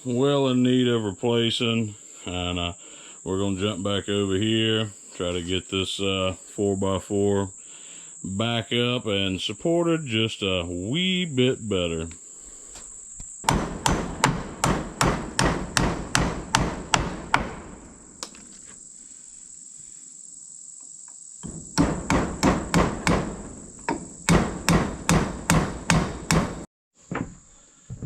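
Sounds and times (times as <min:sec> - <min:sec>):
insects chirring: 0:00.0 - 0:28.0
hammer driving nails into wood: 0:13.4 - 0:18.4, 0:21.4 - 0:26.7.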